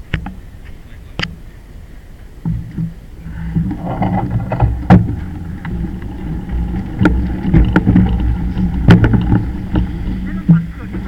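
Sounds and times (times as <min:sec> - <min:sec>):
wind on microphone: 0:00.0 - 0:11.0
sharp knocks and rattles: 0:02.4 - 0:11.0.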